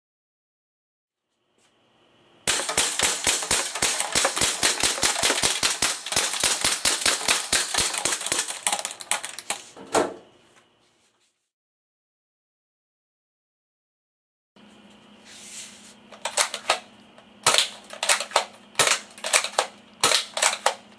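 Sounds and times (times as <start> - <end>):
toy air gun firing rapid shots: 2.5 - 9.6, 16.2 - 16.8, 17.4 - 20.8.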